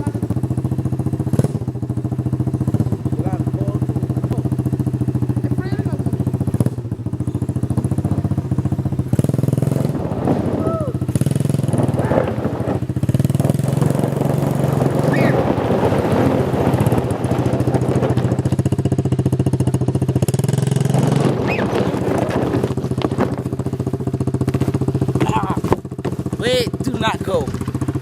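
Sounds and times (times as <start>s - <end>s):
small motorbike engine running: 0.0s - 28.0s.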